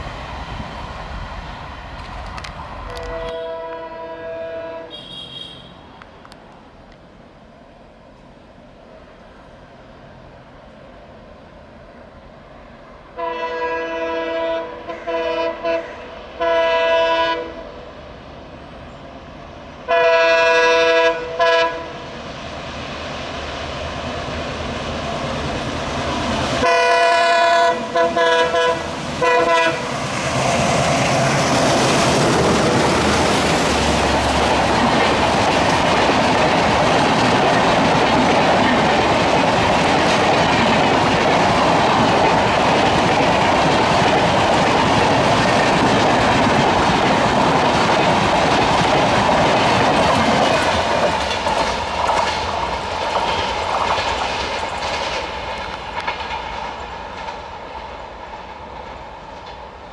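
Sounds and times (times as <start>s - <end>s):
diesel locomotive engines: 0.0s - 59.9s
train coaches rushing past: 0.0s - 59.9s
locomotive horn blasts: 2.9s - 6.0s, 13.2s - 17.6s, 19.9s - 21.9s, 26.6s - 29.9s
wheels clacking over rail joints: 28.2s - 59.8s.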